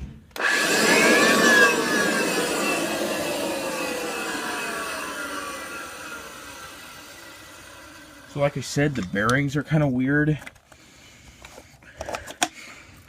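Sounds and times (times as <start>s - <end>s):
vacuum cleaner motor spinning down: 0.4s - 8.8s.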